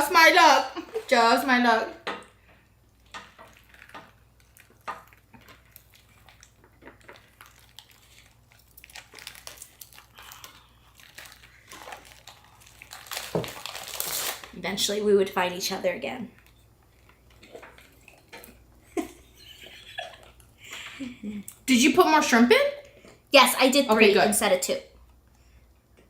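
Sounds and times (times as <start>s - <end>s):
chewing and crunching: 2.4s - 14.3s, 16.3s - 19.3s, 20.1s - 21.7s.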